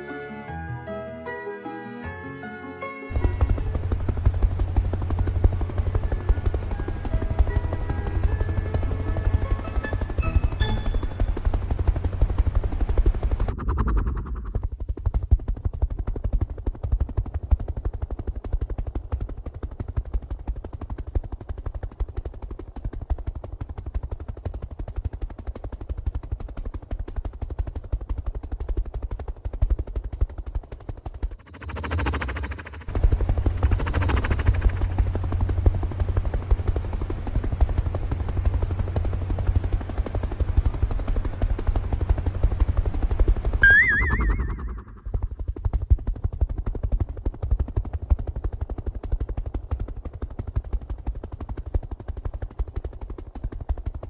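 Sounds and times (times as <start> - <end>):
small motor rattling: 30.7 - 36.9
short warbling whistle: 43.6 - 45.2.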